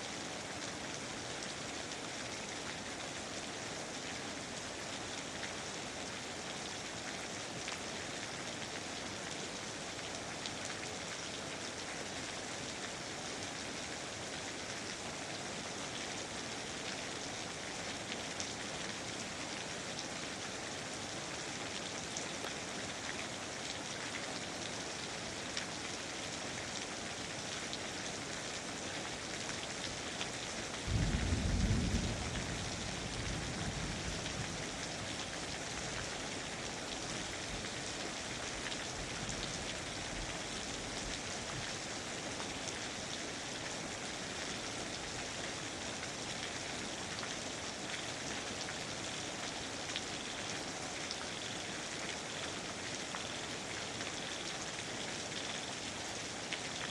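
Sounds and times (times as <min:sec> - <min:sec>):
steady rain falling: 0:00.0 - 0:56.9
low rumble of thunder: 0:30.9 - 0:35.2.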